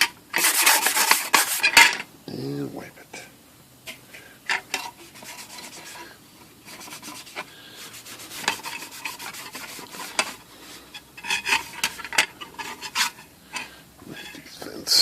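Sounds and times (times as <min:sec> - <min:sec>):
rag scrubbing typewriter casing: 0:00.0 - 0:01.9, 0:04.8 - 0:06.0, 0:06.6 - 0:10.5, 0:11.2 - 0:14.4.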